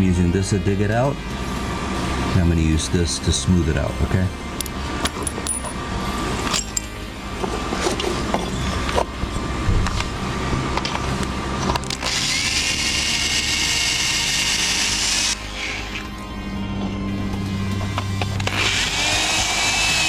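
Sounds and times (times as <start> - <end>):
power tool grinding metal: 11.8 - 16.2, 18.4 - 20.0.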